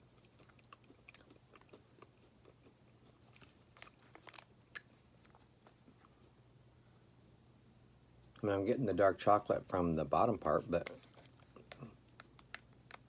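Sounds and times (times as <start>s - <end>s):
chewing with wet mouth clicks: 0.1s - 6.4s.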